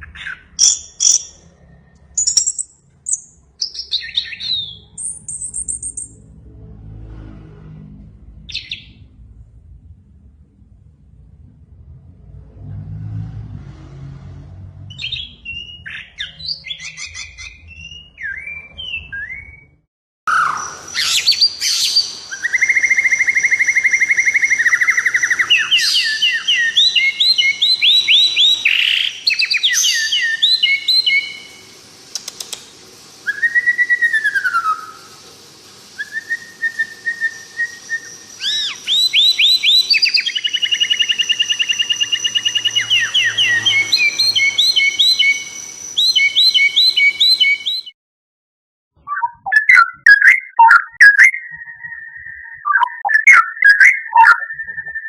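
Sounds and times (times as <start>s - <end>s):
songbirds singing: 0.0s - 6.2s, 8.5s - 9.0s, 14.9s - 19.6s, 20.3s - 35.1s, 36.0s - 47.9s, 49.0s - 55.0s
low hum: 4.8s - 15.0s.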